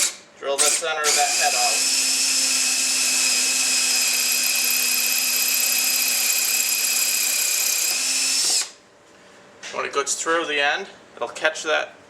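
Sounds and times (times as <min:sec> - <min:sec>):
electric drill whining: 0:00.7 - 0:08.8.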